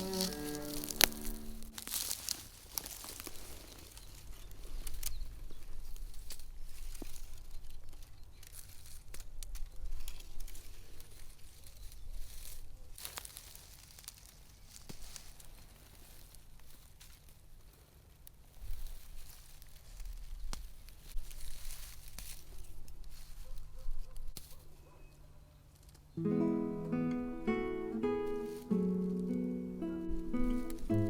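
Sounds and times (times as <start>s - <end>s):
rustling and crinkling: 0.0s - 31.0s.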